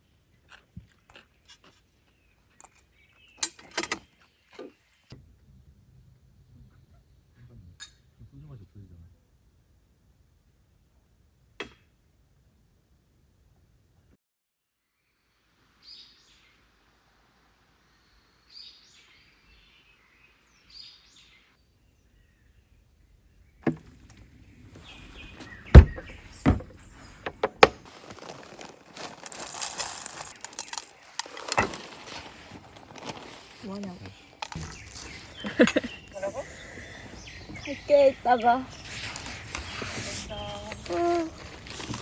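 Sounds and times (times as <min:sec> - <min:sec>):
rustling hiss: 0:23.9 - 0:42.0
sharp knocks: 0:25.7 - 0:27.8
faint bird calls: 0:33.9 - 0:41.5.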